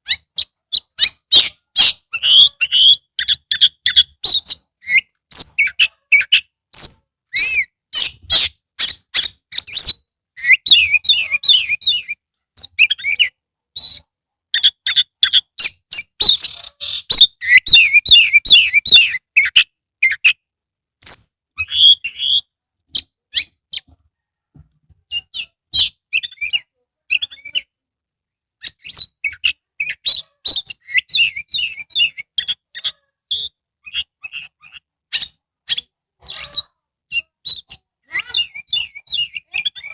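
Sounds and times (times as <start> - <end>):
songbird whistling and trilling: 0.1 - 20.4, 21.0 - 23.9, 25.1 - 27.7, 28.6 - 39.9.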